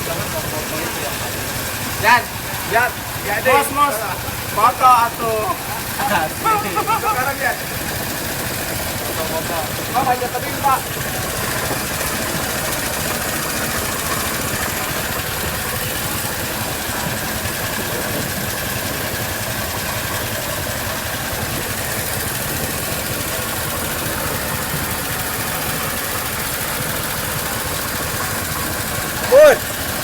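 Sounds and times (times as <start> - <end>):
small boat engine running: 0.0 - 30.0.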